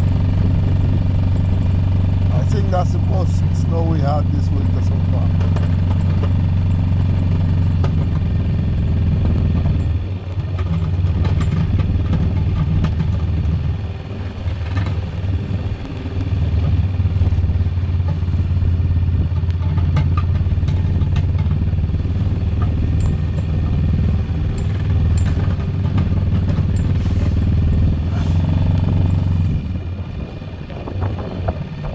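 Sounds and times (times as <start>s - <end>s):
atv engine running: 0.0s - 31.9s
clicks and clanks: 9.2s - 13.6s, 19.4s - 21.6s, 22.5s - 27.1s.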